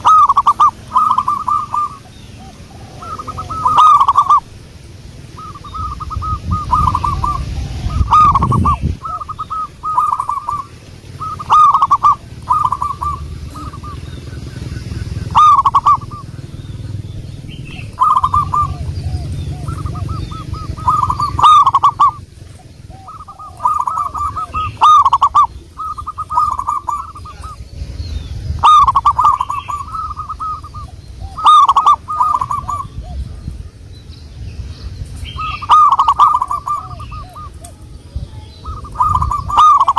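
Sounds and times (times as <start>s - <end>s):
dove cooing: 0.0s - 33.9s, 35.2s - 39.9s
low rumble: 0.0s - 39.8s.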